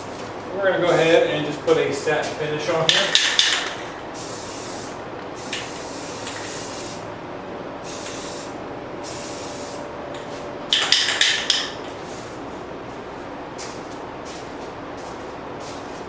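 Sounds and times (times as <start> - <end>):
spray can rattling when shaken: 2.9 - 4.8, 10.7 - 11.8
spray paint can hissing: 3.2 - 7.0, 7.9 - 9.8.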